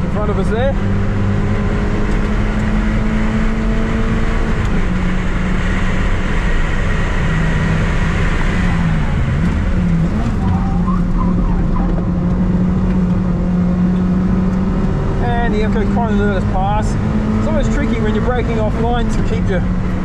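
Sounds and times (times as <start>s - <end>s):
car engine running hard: 0.0s - 20.0s
wind and road noise: 0.0s - 20.0s.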